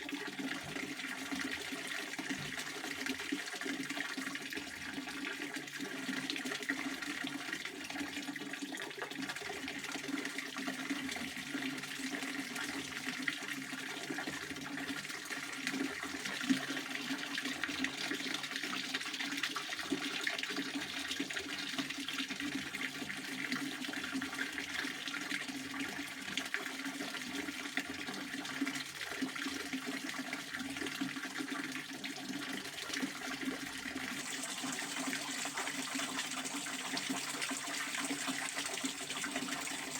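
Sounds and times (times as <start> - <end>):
fountain water splashing: 34.1 - 39.9.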